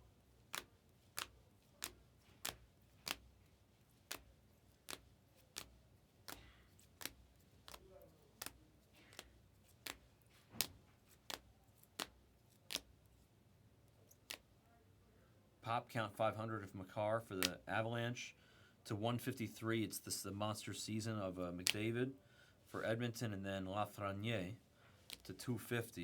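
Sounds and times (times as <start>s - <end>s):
cards snapping clicks: 0.5s - 3.4s, 4.0s - 13.0s, 14.1s - 14.5s, 25.1s - 25.3s.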